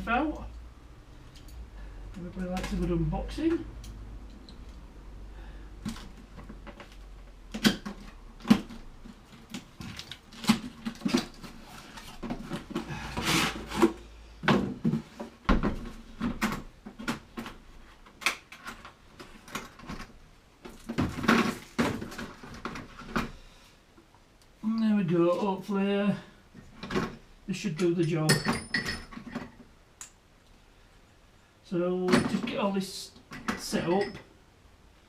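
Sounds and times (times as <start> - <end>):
knocks and clunks of handled tools: 27.8 - 29.6.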